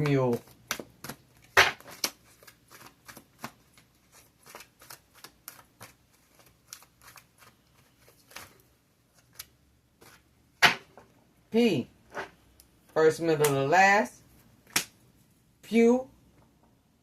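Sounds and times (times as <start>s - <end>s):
cards being shuffled: 0.0s - 10.3s.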